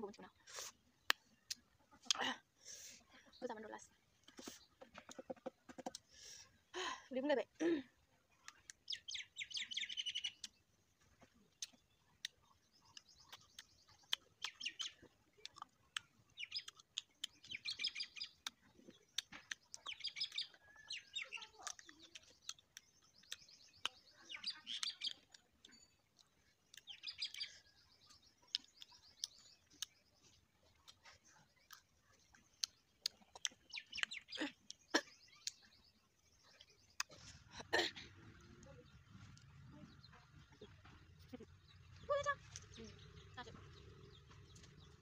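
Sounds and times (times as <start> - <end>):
small birds chirping: 0.0 - 45.0
fruit being bitten and chewed: 0.5 - 2.2, 8.2 - 9.0, 10.0 - 37.5.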